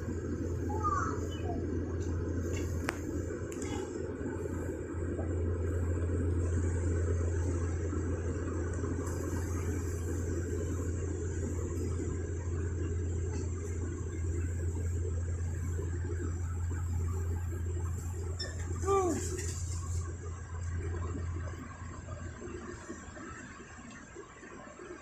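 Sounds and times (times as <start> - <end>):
vehicle engine running steadily: 0.0 - 24.5.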